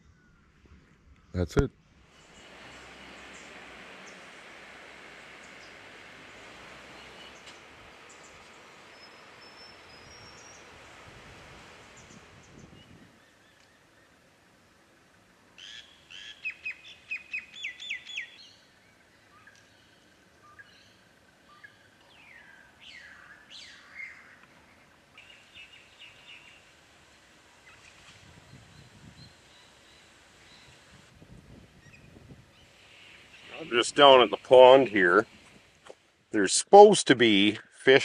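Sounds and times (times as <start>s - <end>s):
soft bird chatter: 1.2s - 31.1s, 31.8s - 36.1s
sharp repeated bird notes: 31.9s - 35.3s.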